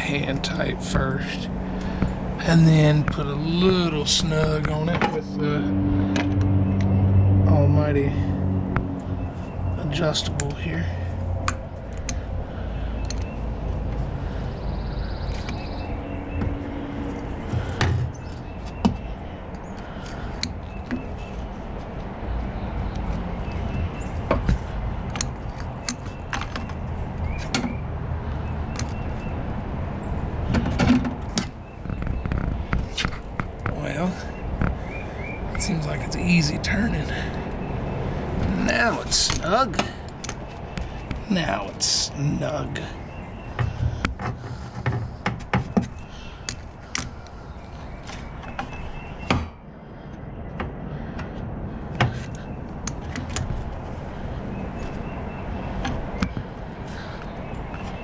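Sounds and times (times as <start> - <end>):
steady low rumble: 0.0 - 30.5.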